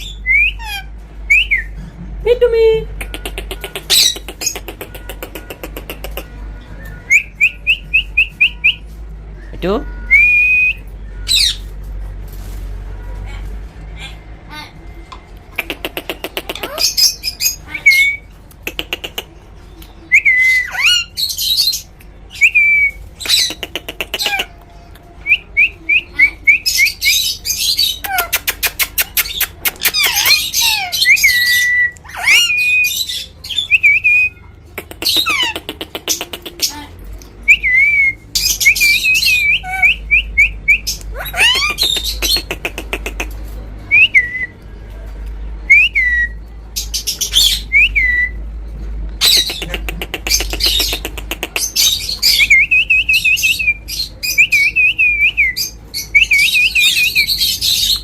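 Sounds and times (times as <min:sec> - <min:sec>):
parrot squawking and whistling: 0:00.0 - 0:01.7, 0:02.9 - 0:06.2, 0:16.3 - 0:18.3, 0:20.1 - 0:24.5, 0:25.3 - 0:34.4, 0:37.5 - 0:43.3, 0:49.2 - 0:58.0.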